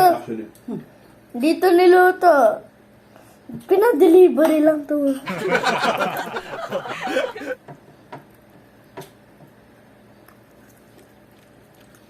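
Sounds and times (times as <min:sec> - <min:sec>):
person chuckling: 0:05.3 - 0:07.6.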